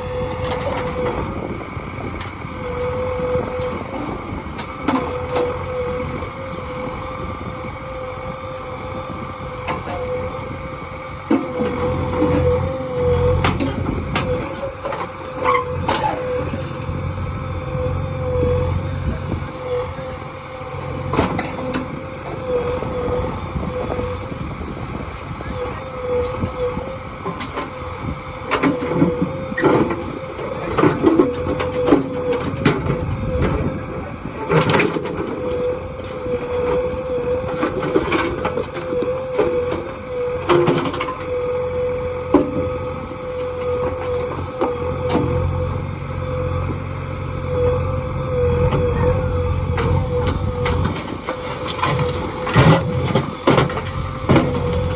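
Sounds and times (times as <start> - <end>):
diesel engine whining under load: 0.0 - 54.9.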